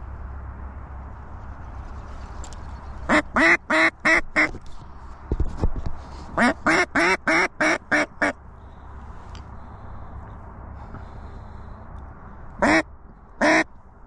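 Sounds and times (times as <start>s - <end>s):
duck call quacks: 3.1s - 4.5s, 6.4s - 8.4s, 12.6s - 13.7s.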